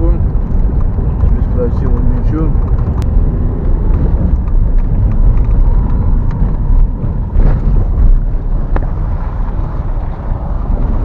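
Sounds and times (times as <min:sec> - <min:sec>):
car tyres and engine rumble: 0:00.0 - 0:11.0
sharp knocks and rattles: 0:00.2 - 0:08.9.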